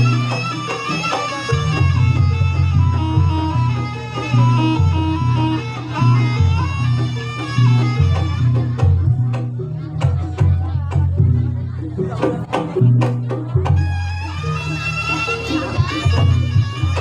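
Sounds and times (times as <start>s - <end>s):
wind instrument melody: 0.0s - 9.9s, 13.6s - 17.0s
deep bass line: 1.5s - 17.0s.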